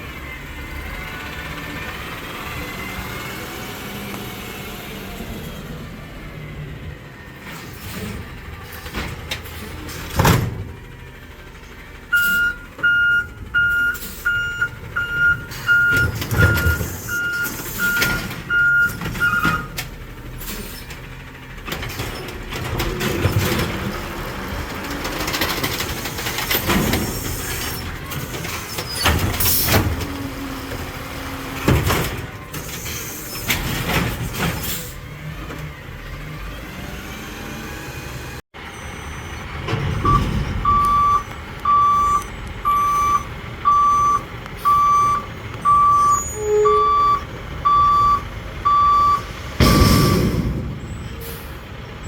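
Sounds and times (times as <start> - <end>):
garbage truck engine: 0.0 - 52.0
reverse alarm beeping: 12.1 - 19.8, 38.7 - 51.0
heavy bangs: 49.2 - 52.0.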